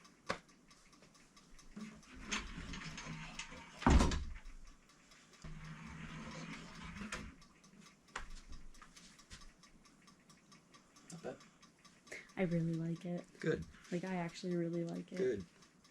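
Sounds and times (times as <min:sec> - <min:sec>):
closet door sliding on track: 0:02.1 - 0:04.4, 0:05.5 - 0:07.3
door thump: 0:03.8 - 0:04.4.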